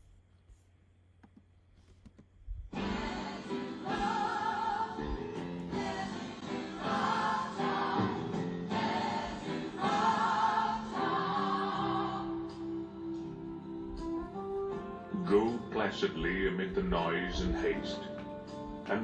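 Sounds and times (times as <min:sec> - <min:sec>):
choir singing over sustained chords: 0:02.8 - 0:13.9.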